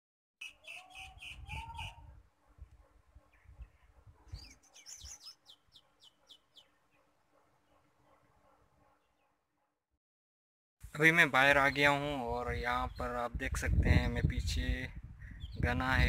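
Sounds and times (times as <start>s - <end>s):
small birds chirping: 0.4s - 9.4s, 11.4s - 14.4s, 15.2s - 16.0s.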